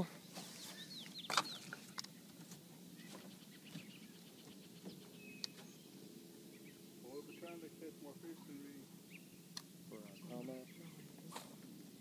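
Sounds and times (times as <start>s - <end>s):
faint bird chirps: 0.2s - 1.8s, 3.0s - 7.6s.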